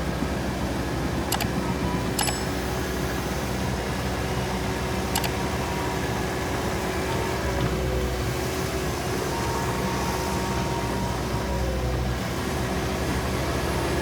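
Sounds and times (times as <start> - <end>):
excavator engine running: 0.0 - 14.0
sharp metallic clicks: 1.3 - 2.6, 5.1 - 5.4.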